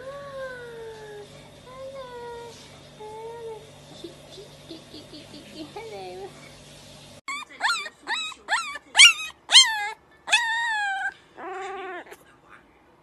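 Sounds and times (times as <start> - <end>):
puppy yipping and howling: 7.3 - 12.2.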